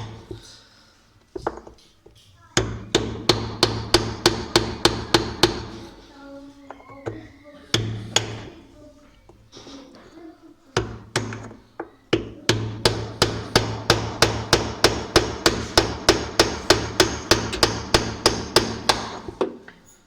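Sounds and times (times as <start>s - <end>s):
hammer blows on metal bolt: 12.2s - 19.5s.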